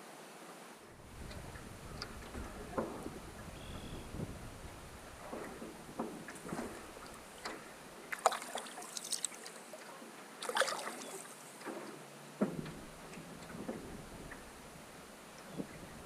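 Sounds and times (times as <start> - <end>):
canoe paddle splashing in water: 1.0 - 16.0
water dripping: 1.2 - 9.8.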